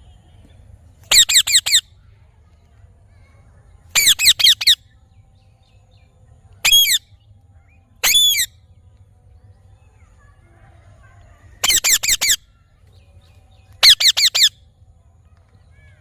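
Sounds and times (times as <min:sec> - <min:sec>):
parrot squawking: 0:01.1 - 0:01.8, 0:04.0 - 0:04.8, 0:06.6 - 0:07.0, 0:08.0 - 0:08.5, 0:11.6 - 0:12.4, 0:13.8 - 0:14.5.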